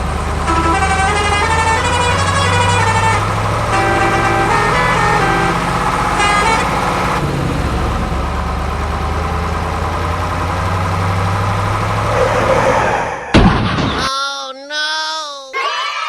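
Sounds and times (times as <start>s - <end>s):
toy truck engine drone: 0.0s - 13.1s
pulsing horn-like tones: 0.4s - 7.2s.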